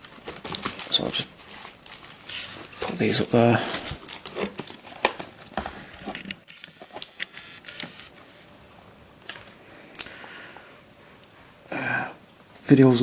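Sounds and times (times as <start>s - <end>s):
small boxes being handled and set down: 2.4s - 8.1s.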